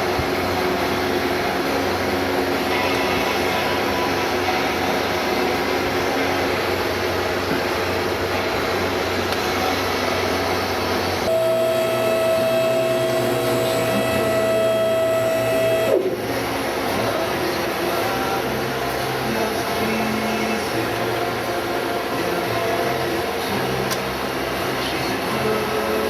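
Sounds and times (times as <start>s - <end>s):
motor whine: 0.0s - 20.0s
hydraulic pump motor whirring: 9.2s - 17.0s
motor stopping knock: 11.3s - 16.2s.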